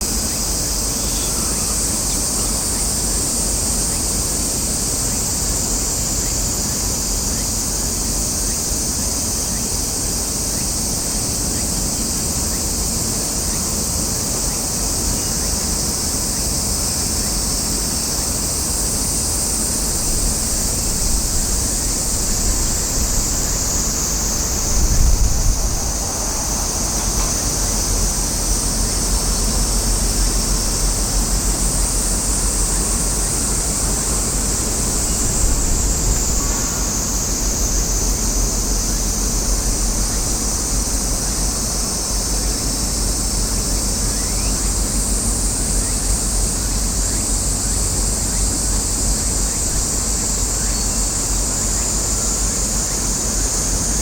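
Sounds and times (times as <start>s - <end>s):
steady high hiss: 0.0s - 54.0s
wind buffeting microphone: 19.6s - 31.2s, 33.0s - 41.6s.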